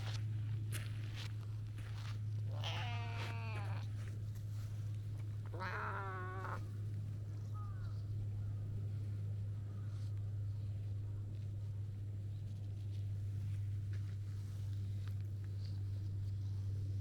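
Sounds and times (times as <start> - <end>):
cat meowing: 2.5 - 3.9, 5.5 - 6.6.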